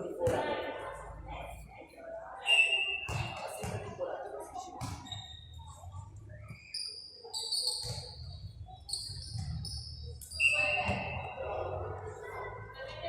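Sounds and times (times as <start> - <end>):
sneaker soles squeaking on court floor: 2.4 - 3.8, 4.8 - 11.4.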